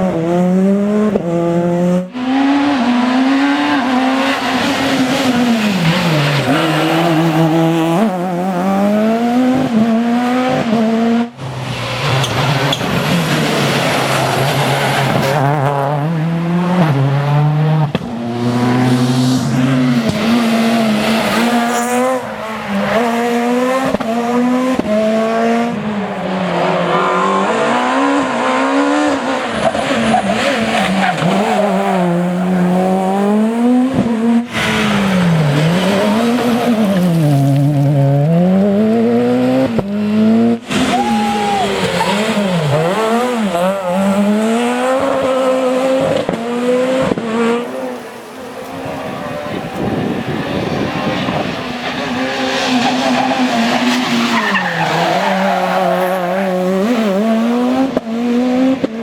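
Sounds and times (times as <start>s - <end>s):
rally car engine revving: 0.0s - 59.0s
tyre squeal: 40.7s - 43.0s.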